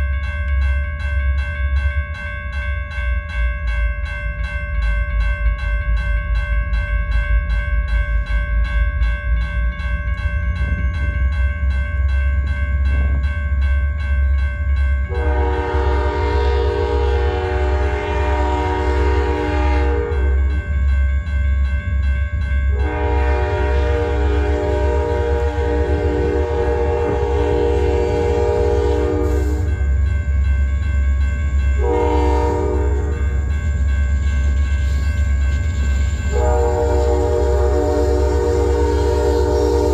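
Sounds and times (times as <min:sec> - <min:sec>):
railroad crossing bell ringing: 0:00.0 - 0:39.9
train air horn blasts: 0:15.1 - 0:20.4, 0:22.7 - 0:29.7, 0:31.8 - 0:33.3, 0:36.3 - 0:39.9.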